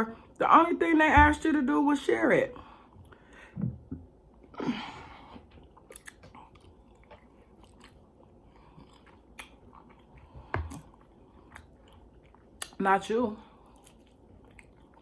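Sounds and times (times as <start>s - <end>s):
chewing food: 5.4s - 12.8s, 13.5s - 15.0s
wet mouth clicks and smacks: 5.8s - 8.0s, 9.3s - 9.7s.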